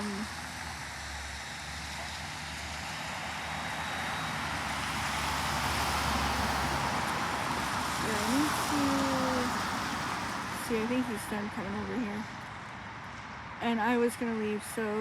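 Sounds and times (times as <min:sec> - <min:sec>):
vehicle approaching: 0:00.0 - 0:15.0.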